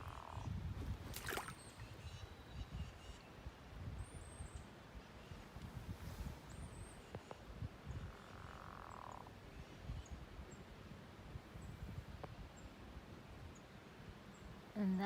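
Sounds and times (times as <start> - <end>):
low rumble on microphone: 0.0 - 2.8.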